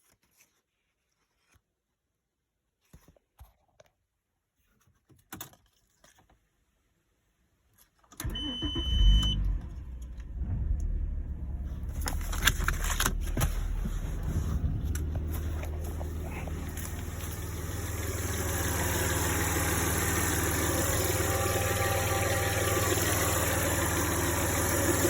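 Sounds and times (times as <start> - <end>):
car engine starting and idling: 8.2 - 25.0
thin high tone: 20.0 - 24.7.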